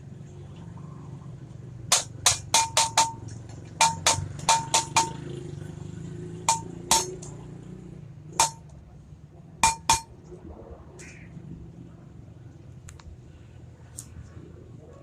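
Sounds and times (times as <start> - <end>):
hammer striking metal: 1.9 - 5.4, 6.4 - 7.5, 8.4 - 8.7, 9.6 - 10.1.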